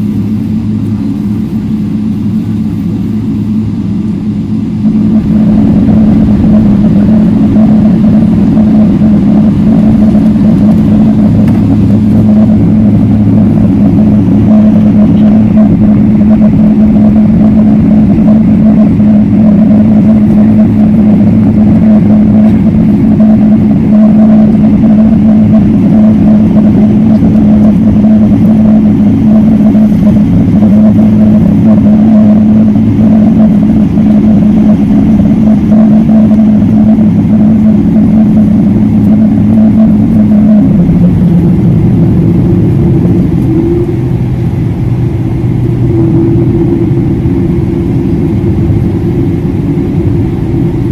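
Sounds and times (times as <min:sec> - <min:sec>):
high engine tone: 0:00.0 - 0:50.9
jet engine drone in cabin: 0:00.0 - 0:50.9.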